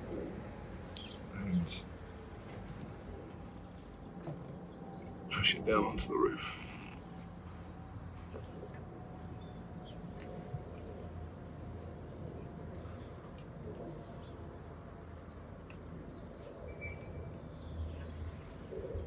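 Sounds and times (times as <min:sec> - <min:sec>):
low outdoor rumble: 0:00.0 - 0:16.0
small bird chirping: 0:00.9 - 0:02.2.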